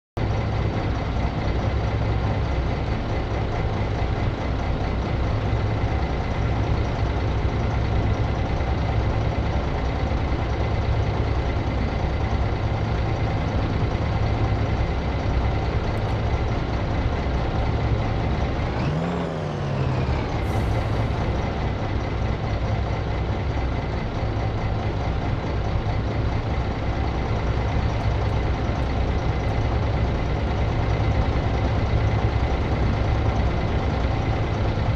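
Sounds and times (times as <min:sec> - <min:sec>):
bus engine running: 0:00.2 - 0:34.9.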